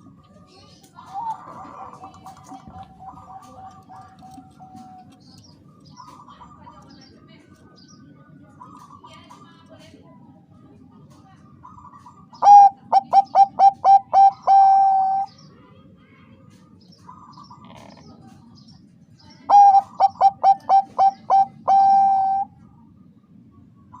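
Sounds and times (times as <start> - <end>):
dove cooing: 1.0 - 6.9, 11.6 - 15.3, 19.5 - 22.8.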